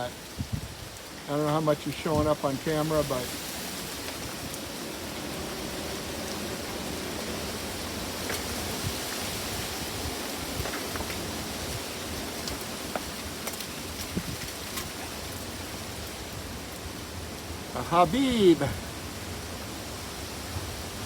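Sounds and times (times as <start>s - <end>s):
strong wind on microphone: 0.2s - 1.0s, 14.0s - 14.6s.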